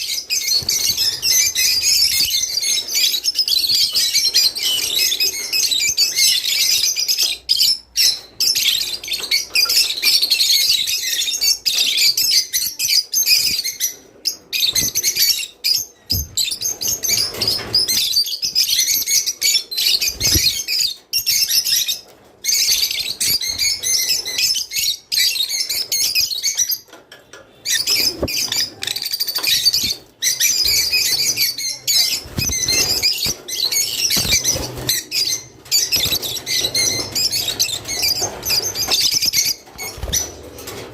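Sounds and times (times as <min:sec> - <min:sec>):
lovebirds chirping: 0:00.0 - 0:40.5.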